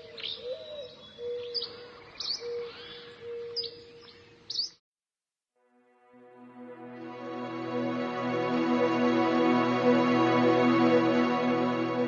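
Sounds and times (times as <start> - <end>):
birds chirping: 0.0 - 4.8.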